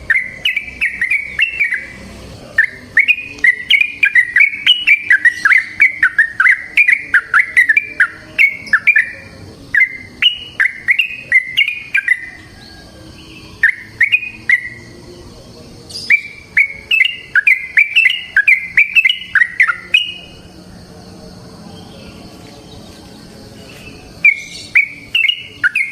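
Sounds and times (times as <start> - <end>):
bird singing bubbling whistles: 0.1 - 2.0, 13.6 - 14.8, 16.0 - 20.2, 24.2 - 25.9.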